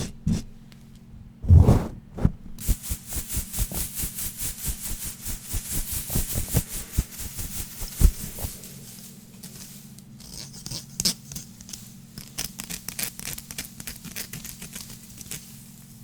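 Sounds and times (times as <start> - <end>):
steady low hum: 0.0 - 9.4
heavy knocks on object: 1.4 - 2.6
scratchy strokes: 1.4 - 4.1.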